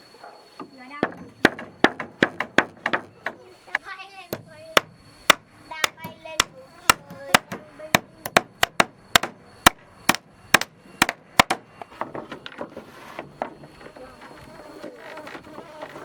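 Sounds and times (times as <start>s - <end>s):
hammer striking wood: 0.6s - 3.8s, 4.4s - 12.7s.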